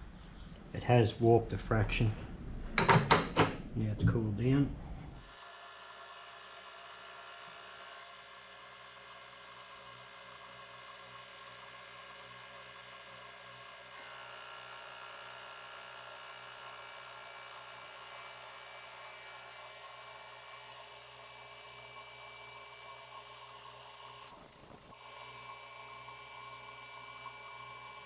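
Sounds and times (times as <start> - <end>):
milling machine cutting steel: 24.1 - 28.0.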